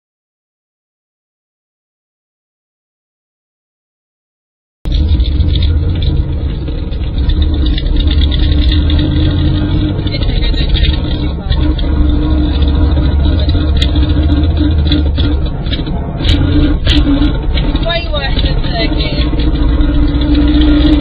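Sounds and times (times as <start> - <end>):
car rumbling on the move: 4.9 - 21.0
driveshaft rubbing with wavering tone: 4.9 - 21.0.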